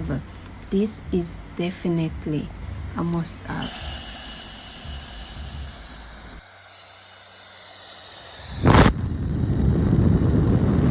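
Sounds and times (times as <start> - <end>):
steady high hiss: 0.0 - 10.9
hair dryer blowing: 3.6 - 10.9.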